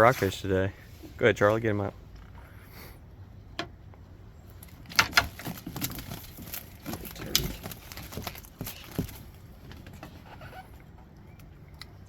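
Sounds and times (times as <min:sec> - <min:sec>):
sharp knocks and clatters: 0:04.8 - 0:10.1.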